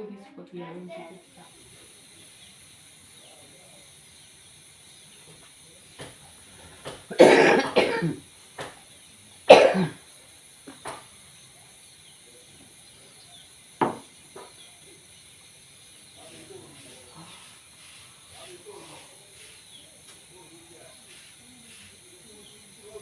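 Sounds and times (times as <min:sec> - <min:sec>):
person coughing: 0:07.1 - 0:08.2, 0:09.5 - 0:10.0
light knocks: 0:13.8 - 0:14.6.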